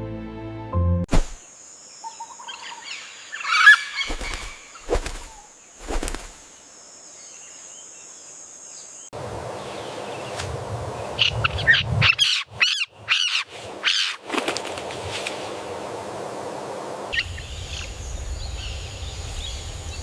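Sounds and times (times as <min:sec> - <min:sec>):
bird harsh scratchy call: 0:03.4 - 0:06.2, 0:11.6 - 0:14.2.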